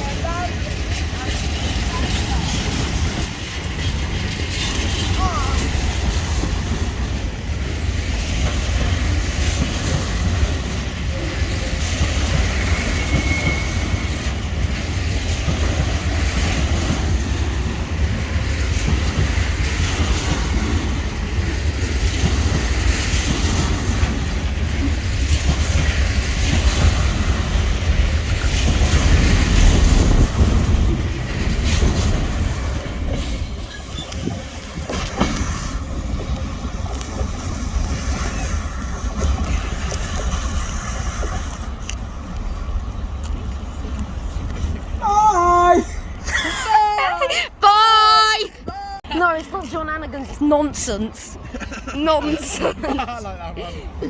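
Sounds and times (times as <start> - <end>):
freight train wheels rumbling: 0.0 - 54.0
wheel squeal: 12.4 - 14.5, 33.6 - 35.8.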